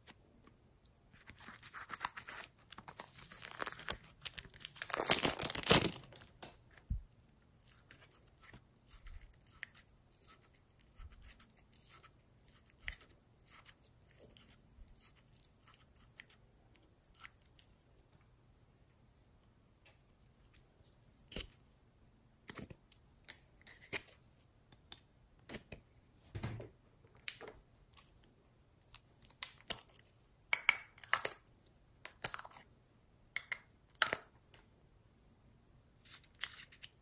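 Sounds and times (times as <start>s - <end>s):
slime crackling and popping: 2.3s - 6.2s.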